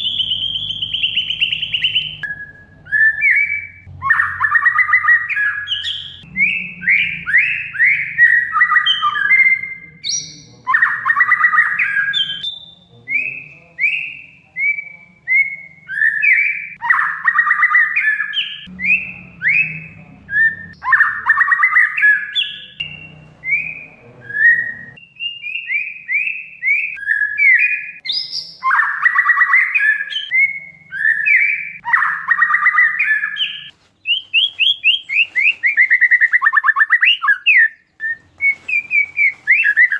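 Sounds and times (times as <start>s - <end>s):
harsh rattling bird chatter: 0.0s - 9.5s
bird singing: 0.0s - 39.9s.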